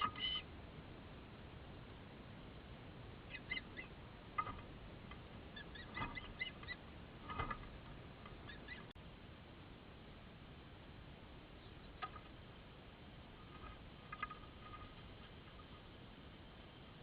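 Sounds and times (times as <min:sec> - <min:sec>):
bird chirping: 0:00.0 - 0:00.5, 0:03.2 - 0:04.7, 0:05.5 - 0:09.0, 0:11.5 - 0:12.3
background hiss: 0:00.0 - 0:17.0.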